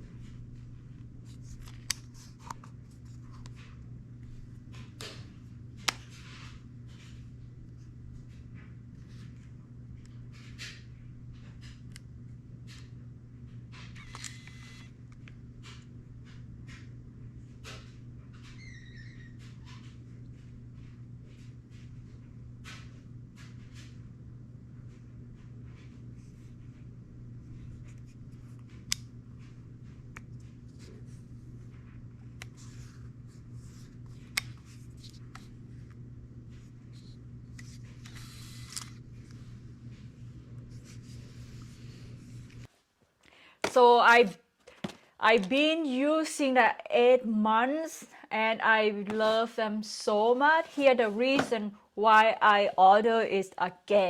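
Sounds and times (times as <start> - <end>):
steady low hum: 0.0 - 42.7
plastic squeak: 13.9 - 14.9, 18.5 - 19.4.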